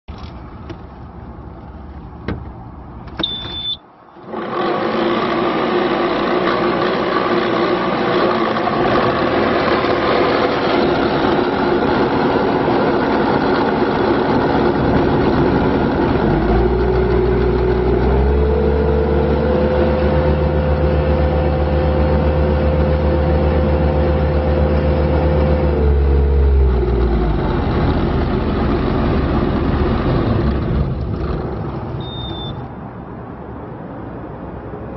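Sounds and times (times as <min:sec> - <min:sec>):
short beep: 0:03.2 - 0:03.9, 0:32.0 - 0:32.7
diesel engine starting and revving: 0:03.2 - 0:32.8.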